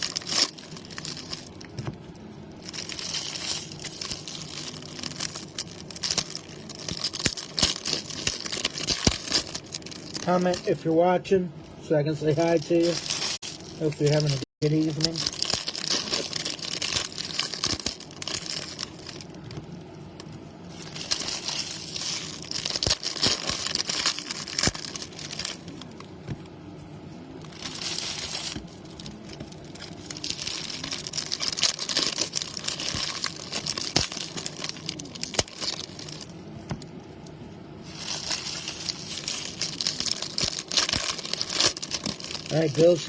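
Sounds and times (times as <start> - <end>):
foil wrappers tearing and crinkling: 0.0 - 10.9, 12.2 - 19.6, 20.2 - 26.2, 27.3 - 36.3, 37.8 - 43.0.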